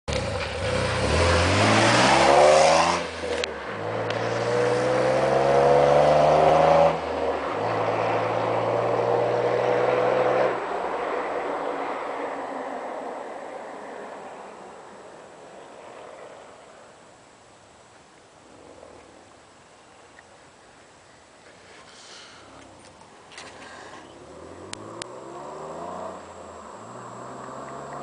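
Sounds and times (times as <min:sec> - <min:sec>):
car exhaust accelerating: 0:00.1 - 0:11.7, 0:24.1 - 0:28.0.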